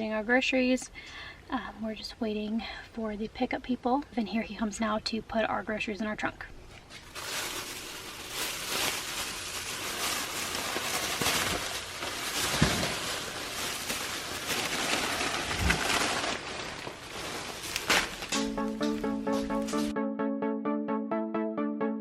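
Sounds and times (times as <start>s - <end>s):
grocery bags rustling: 6.7s - 19.9s
bags thumping in trunk: 12.4s - 13.3s, 17.6s - 19.9s
background music with beat: 18.4s - 22.0s.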